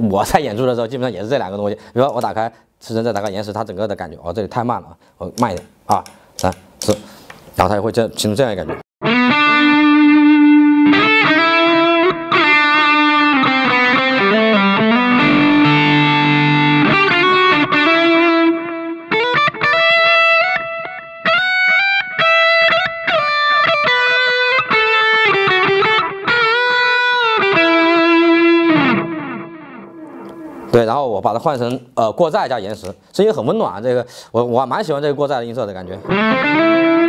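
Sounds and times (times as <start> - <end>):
distorted electric guitar lead: 9.0 - 30.8, 36.0 - 37.0.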